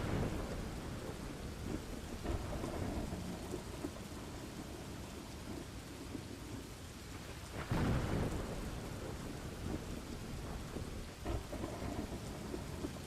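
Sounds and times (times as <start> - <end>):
thunder clap: 0.0 - 4.0, 7.6 - 13.0
steady rain: 0.0 - 13.0.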